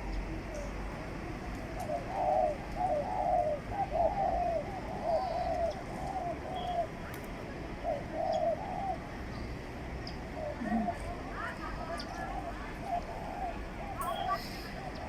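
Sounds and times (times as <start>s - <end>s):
pigeons cooing: 1.7s - 7.0s, 7.8s - 9.2s, 10.3s - 11.2s, 12.0s - 15.0s.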